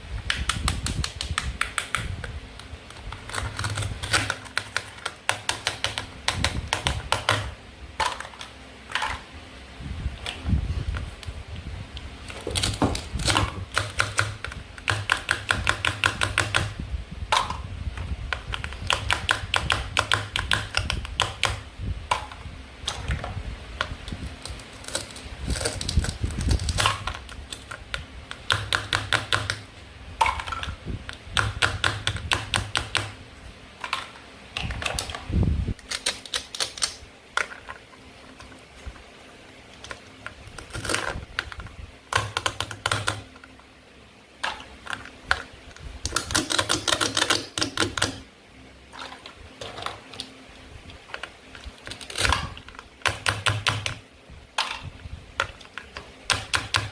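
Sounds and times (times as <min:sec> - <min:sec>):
toy knife cutting toy food: 0:46.1 - 0:48.2.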